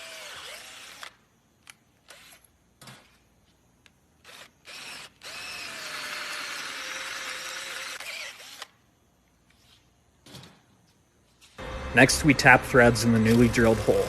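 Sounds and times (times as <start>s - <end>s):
electric drill boring steel: 0.0s - 1.2s, 4.2s - 8.7s.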